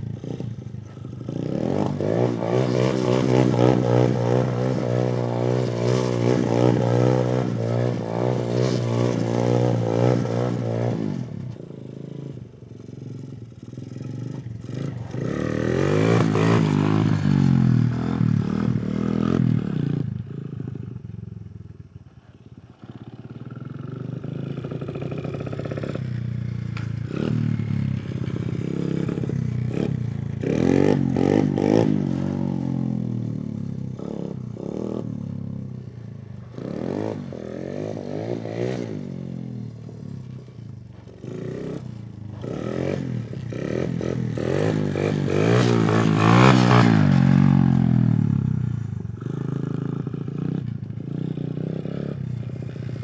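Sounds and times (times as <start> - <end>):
dirt bike engine revving: 0.0 - 20.6, 22.8 - 35.4, 36.4 - 53.0.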